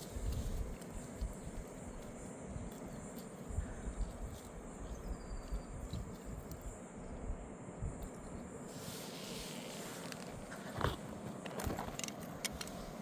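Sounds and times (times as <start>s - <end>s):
crickets trilling: 0.0s - 13.0s
outdoor hiss: 6.2s - 13.0s.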